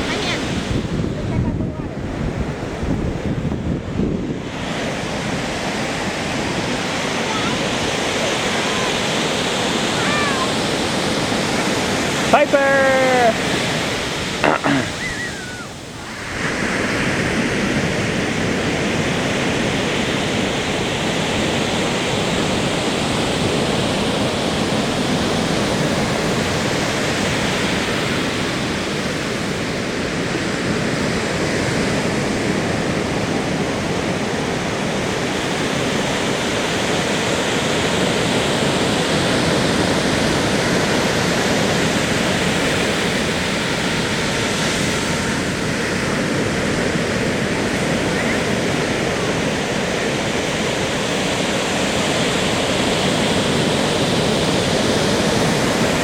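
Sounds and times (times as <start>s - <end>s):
ocean surf rushing: 0.0s - 56.0s.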